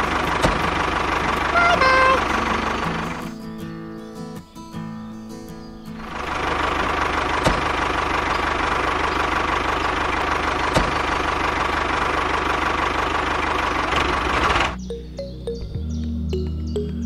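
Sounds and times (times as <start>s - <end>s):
tractor engine running: 0.0s - 4.0s, 5.6s - 14.9s.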